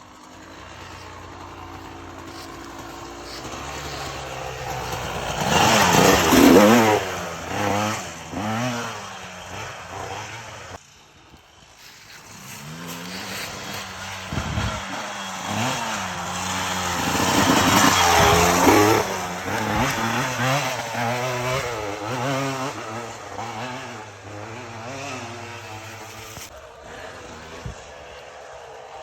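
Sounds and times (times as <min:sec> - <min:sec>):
dirt bike engine revving: 0:00.0 - 0:11.0, 0:11.8 - 0:29.0.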